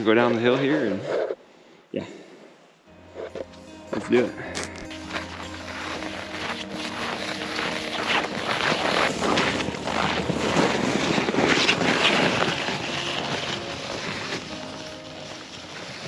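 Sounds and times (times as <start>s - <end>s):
footsteps crunching in snow: 3.1s - 16.0s
sled scraping over snow: 3.2s - 16.0s.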